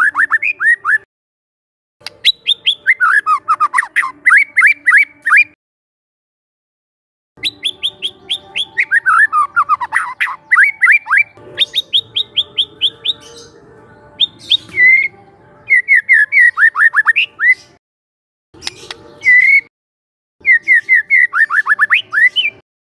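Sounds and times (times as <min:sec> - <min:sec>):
songbird singing: 0:00.0 - 0:01.0, 0:02.0 - 0:05.6, 0:07.4 - 0:17.8, 0:18.6 - 0:19.7, 0:20.4 - 0:22.6.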